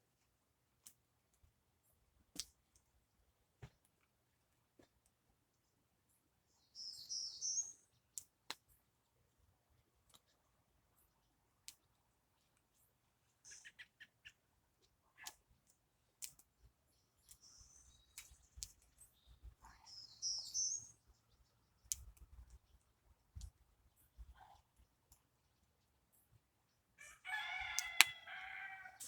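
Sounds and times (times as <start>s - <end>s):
birds chirping: 16.9s - 24.5s.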